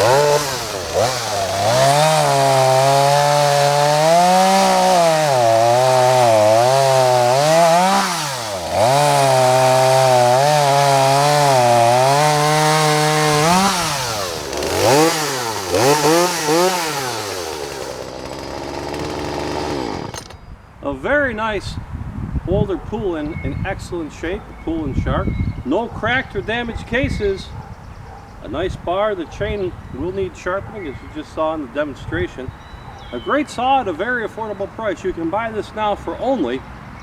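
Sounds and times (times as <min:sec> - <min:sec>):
chainsaw revving: 0:00.0 - 0:20.4.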